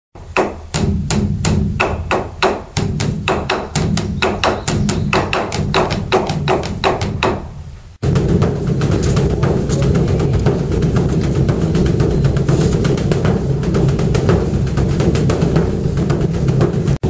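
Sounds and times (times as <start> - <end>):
low hum: 7.5 - 16.9
bell struck rapidly: 8.2 - 13.8.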